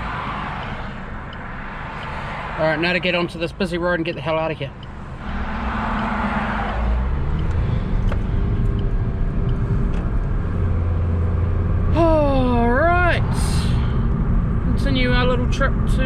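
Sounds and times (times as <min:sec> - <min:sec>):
car engine rumble: 0:00.0 - 0:16.0
rushing whoosh: 0:05.0 - 0:09.9.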